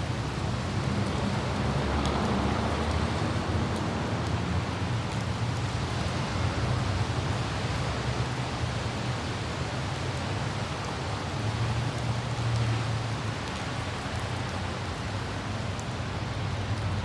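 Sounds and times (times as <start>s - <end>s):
city traffic rumble: 0.0s - 17.0s
light rain falling: 0.0s - 17.0s
wind: 0.0s - 17.0s.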